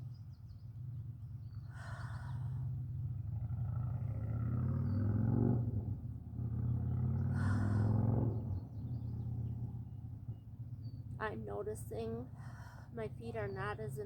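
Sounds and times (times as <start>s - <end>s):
person breathing deeply: 7.3s - 8.0s.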